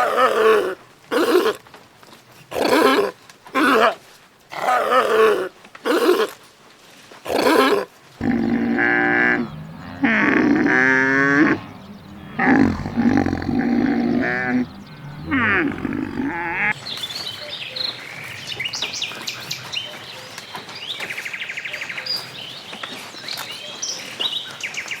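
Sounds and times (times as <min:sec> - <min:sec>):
animal calls with wavering pitch: 0:08.2 - 0:16.7
bird chirps and trills: 0:08.2 - 0:22.4.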